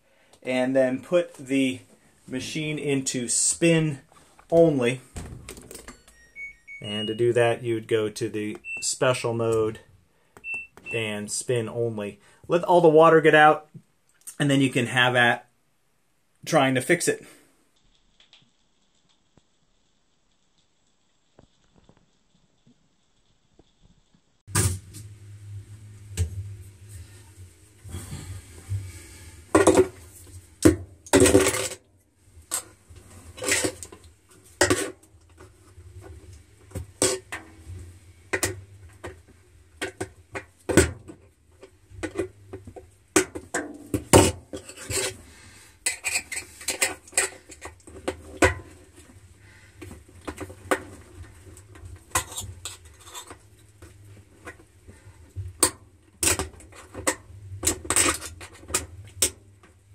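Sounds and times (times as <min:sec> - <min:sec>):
low steady hum: 0:24.5 - 0:59.9.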